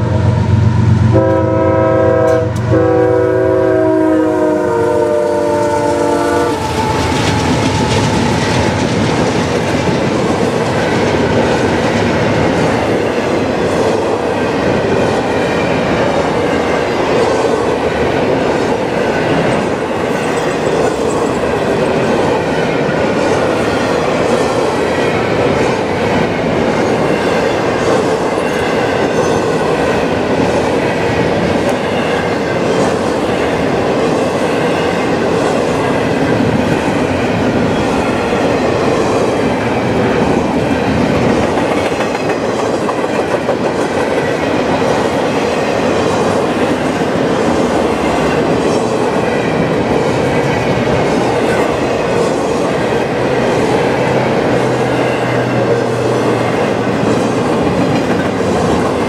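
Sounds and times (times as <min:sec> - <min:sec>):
locomotive horn chord: 0:00.0 - 0:07.0
freight train rumble and wheel clatter: 0:00.0 - 0:59.0.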